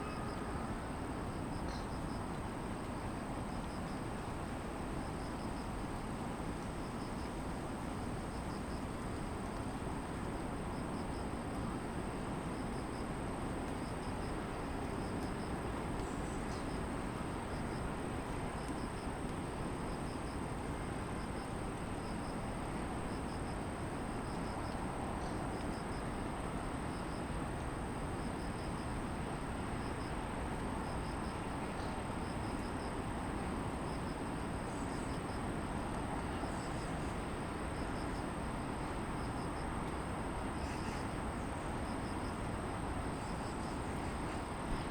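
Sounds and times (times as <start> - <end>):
insect chirping: 0.0 - 2.4, 3.1 - 4.3, 5.0 - 9.6, 10.2 - 11.4, 12.5 - 13.1, 13.7 - 19.2, 23.1 - 26.1, 28.2 - 29.0, 29.8 - 30.2, 30.8 - 33.0, 33.8 - 35.5, 36.3 - 44.9.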